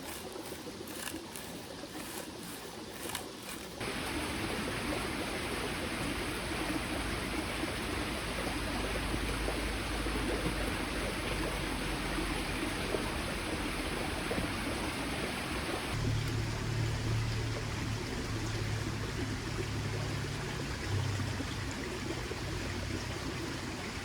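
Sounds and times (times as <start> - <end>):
stream babbling: 0.0 - 24.0.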